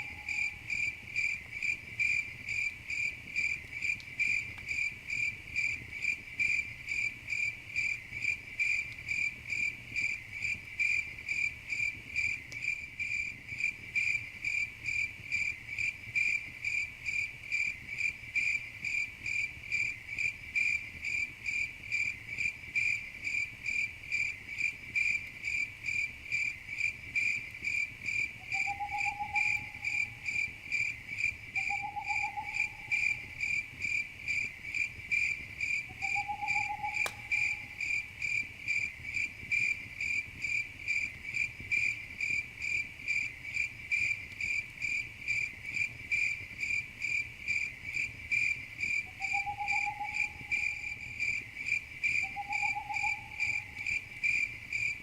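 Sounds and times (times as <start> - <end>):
crickets chirping: 0.0 - 55.0
sharp crackle: 32.6 - 43.3.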